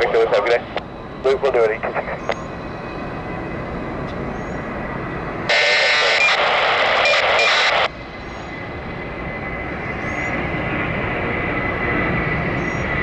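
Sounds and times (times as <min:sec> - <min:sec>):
aircraft engines rumbling: 0:00.0 - 0:13.0
radio static burst: 0:01.3 - 0:02.4, 0:05.5 - 0:07.9.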